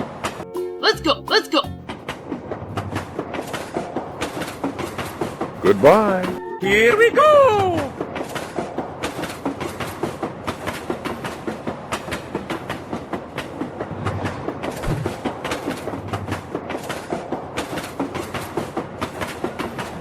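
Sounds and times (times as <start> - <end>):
train wheels clicking over rail joints: 1.9 - 5.7, 7.9 - 20.0.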